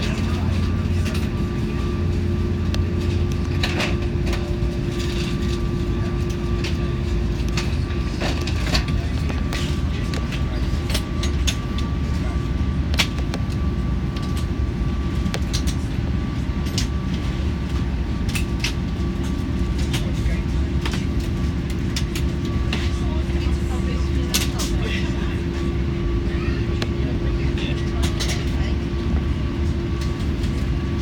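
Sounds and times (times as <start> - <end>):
steady hum: 0.0 - 19.6
low cabin rumble: 0.0 - 31.0.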